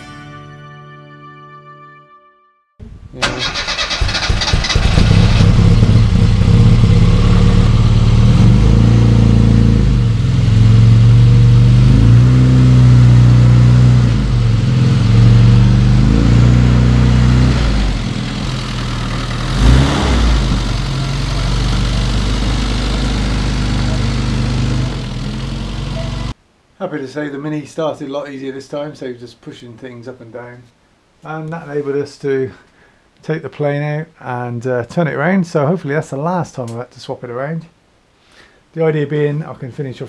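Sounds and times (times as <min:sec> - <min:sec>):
car engine revving: 0:03.5 - 0:26.3.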